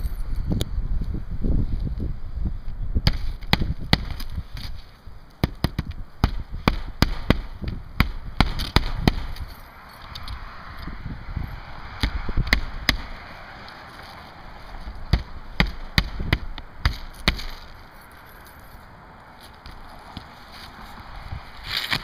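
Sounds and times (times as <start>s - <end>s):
hammer driving nails into shingles: 15.1s - 17.7s.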